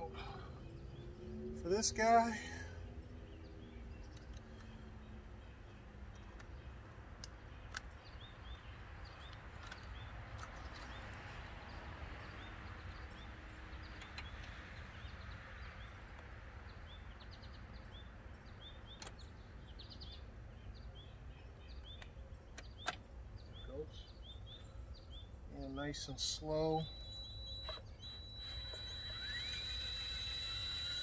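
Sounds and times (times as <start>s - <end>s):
low steady background hum: 0.0s - 31.0s
small bird chirping: 16.7s - 31.0s
sharp clicks: 26.8s - 31.0s.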